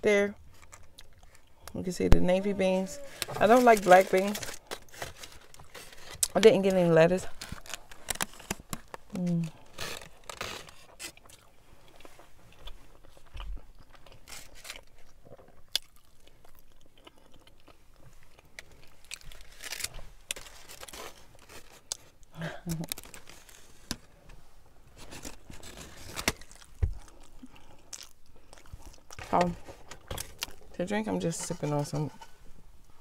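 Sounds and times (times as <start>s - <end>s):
person chewing burrito: 0.4s - 1.6s, 4.6s - 6.3s, 7.3s - 23.8s, 25.3s - 30.7s.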